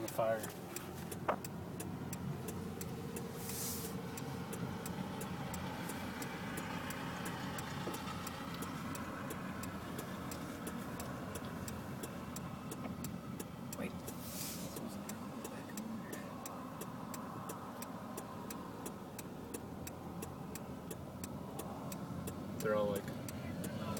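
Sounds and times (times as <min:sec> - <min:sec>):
fast ticking clicks: 0:00.0 - 0:03.3, 0:04.0 - 0:23.9
car engine and road rumble: 0:00.0 - 0:23.9
short hiss: 0:03.3 - 0:04.0, 0:14.1 - 0:14.9.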